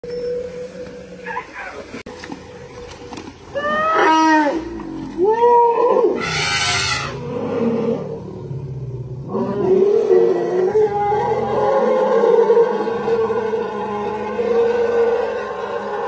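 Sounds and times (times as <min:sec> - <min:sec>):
elephants squealing: 0:05.8 - 0:07.2
elephant harsh blast: 0:06.2 - 0:07.3.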